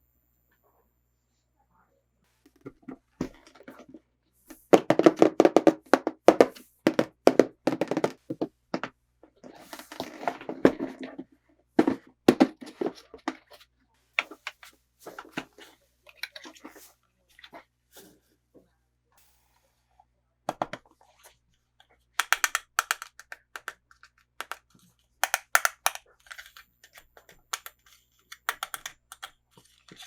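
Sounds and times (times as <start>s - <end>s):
toy pieces tapping and knocking: 4.7s - 8.9s, 20.5s - 20.9s, 22.2s - 30.0s.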